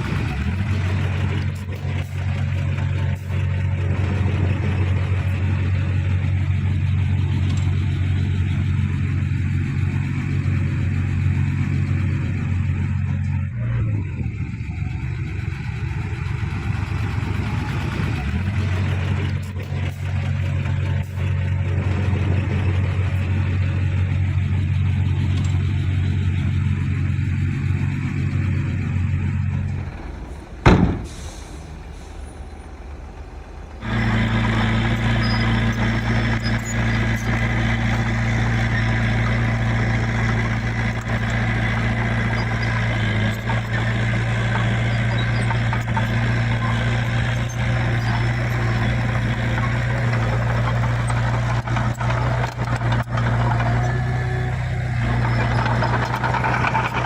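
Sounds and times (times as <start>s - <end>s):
diesel engines of heavy machinery: 0.0s - 57.0s
sharp crack: 30.6s - 31.9s.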